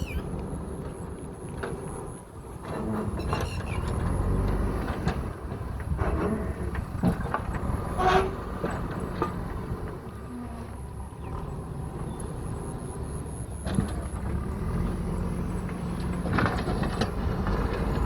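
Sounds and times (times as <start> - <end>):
diesel engine running: 0.0 - 18.0
metal clanks and rattles: 2.6 - 10.0.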